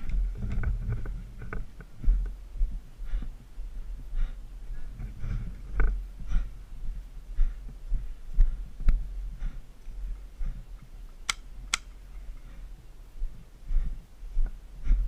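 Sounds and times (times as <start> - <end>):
airsoft gun snaps: 11.3 - 11.9.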